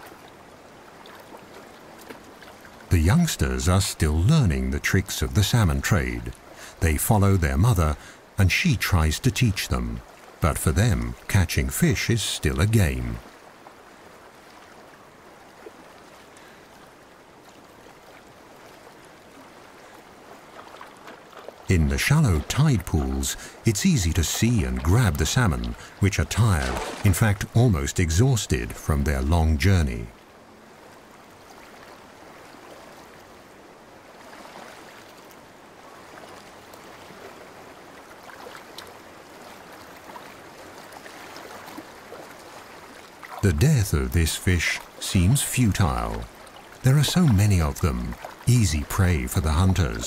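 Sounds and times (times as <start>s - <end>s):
small splashes: 0.0s - 2.9s, 13.1s - 27.6s, 36.0s - 43.5s, 44.8s - 50.0s
stream water flowing: 0.0s - 50.0s.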